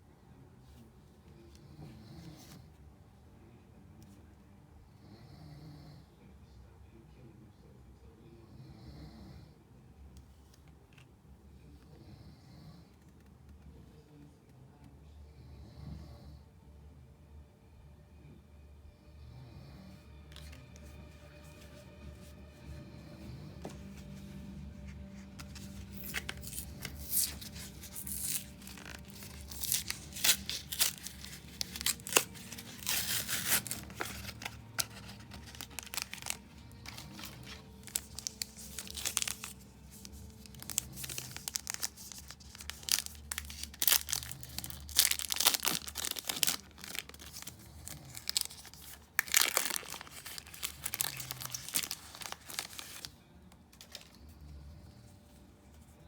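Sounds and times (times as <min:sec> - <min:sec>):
foil wrapper tearing and crinkling: 0:25.2 - 0:53.2.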